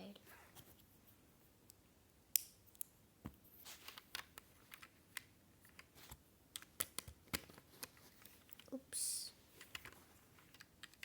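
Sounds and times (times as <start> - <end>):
plastic bricks clicking: 9.6 - 11.0.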